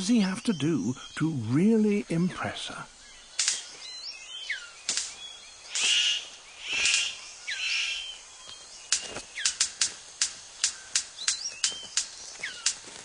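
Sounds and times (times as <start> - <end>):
harsh rasping bird calls: 0.0 - 13.0
bird clicks and snaps: 3.4 - 3.8, 4.8 - 6.0, 8.9 - 12.8.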